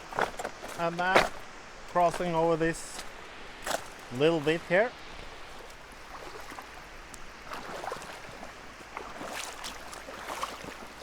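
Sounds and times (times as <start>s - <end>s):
stream running over rocks: 0.0s - 11.0s
splashes of person wading: 5.2s - 11.0s.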